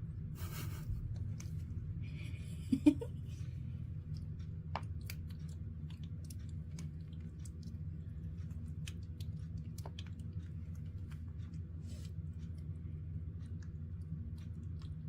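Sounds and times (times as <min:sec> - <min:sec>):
steady low hum: 0:00.0 - 0:15.0
monkey chewing and smacking: 0:03.3 - 0:15.0.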